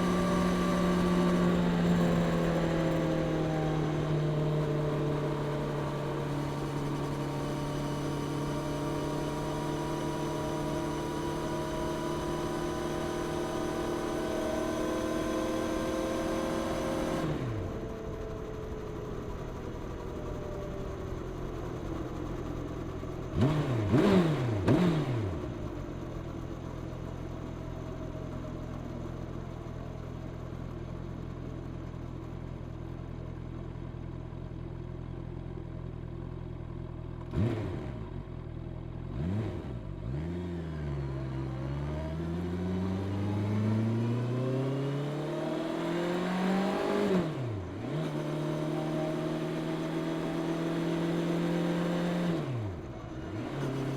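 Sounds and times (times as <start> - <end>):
motorcycle engine running: 0.0 - 53.9
motorcycle engine revving: 23.2 - 26.6, 37.2 - 53.9.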